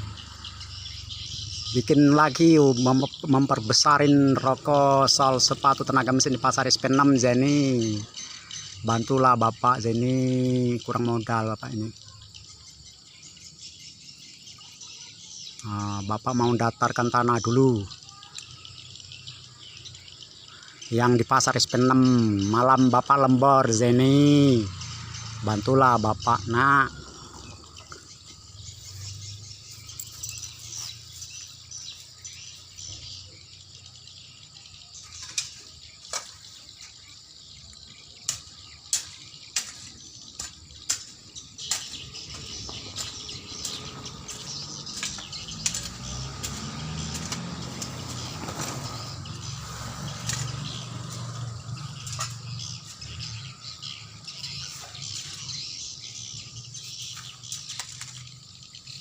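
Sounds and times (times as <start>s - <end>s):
hand tool striking ground: 35.0s - 37.0s, 38.2s - 53.3s, 54.4s - 56.3s, 56.9s - 58.3s.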